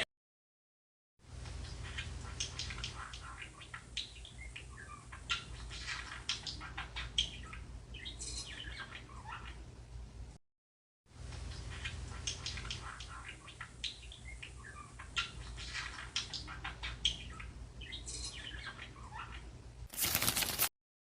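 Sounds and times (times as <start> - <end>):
birds chirping: 1.5 - 9.6, 11.4 - 20.7.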